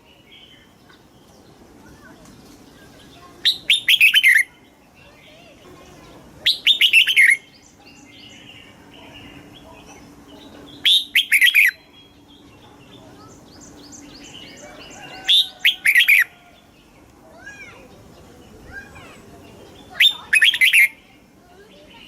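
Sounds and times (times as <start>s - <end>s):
faint bird chirping: 0.0s - 22.0s
bird singing whistled phrases: 3.4s - 4.6s, 6.4s - 8.5s, 10.7s - 12.5s, 19.7s - 21.0s.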